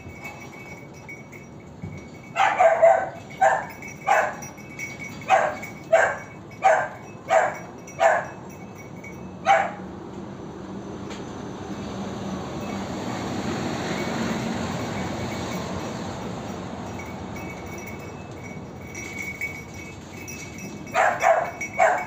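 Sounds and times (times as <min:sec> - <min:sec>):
dog barking: 0:02.4 - 0:04.5, 0:05.3 - 0:08.4, 0:09.4 - 0:09.8, 0:20.9 - 0:22.0.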